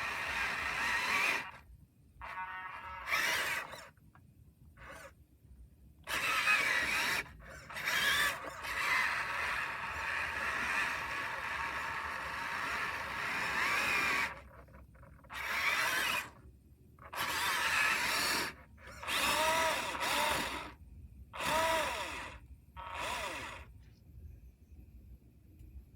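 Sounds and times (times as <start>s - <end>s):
electric motor and gearbox whining: 0.0s - 1.6s, 2.2s - 4.0s, 4.8s - 5.2s, 6.1s - 16.4s, 17.0s - 20.8s, 21.4s - 23.7s.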